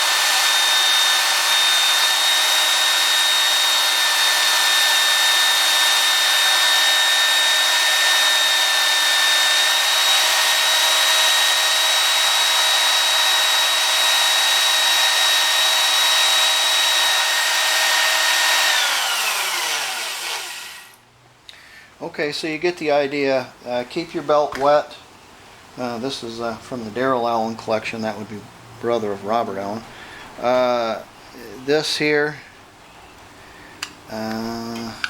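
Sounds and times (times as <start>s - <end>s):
belt sander running: 0.0s - 21.0s.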